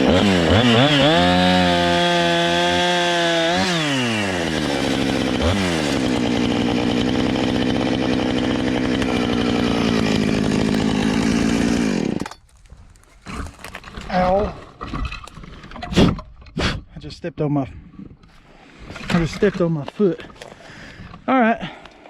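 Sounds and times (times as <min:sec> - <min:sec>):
chainsaw cutting wood: 0:00.0 - 0:12.5.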